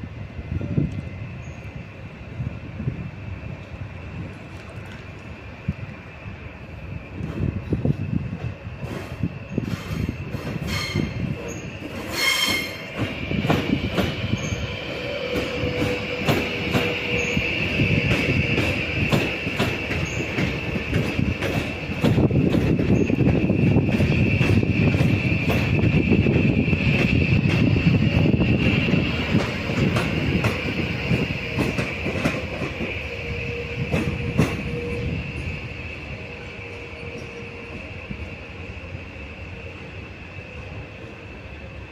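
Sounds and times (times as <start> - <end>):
train wheels squealing on rails: 0.4 - 2.8, 4.9 - 41.9
train wheels clacking over joints: 18.0 - 25.9, 29.2 - 33.0.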